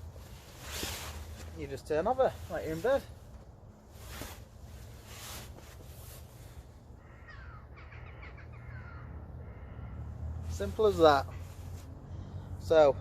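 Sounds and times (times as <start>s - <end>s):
hammock fabric rustling: 0.0s - 6.8s, 10.4s - 12.1s
distant crows cawing: 6.8s - 12.4s.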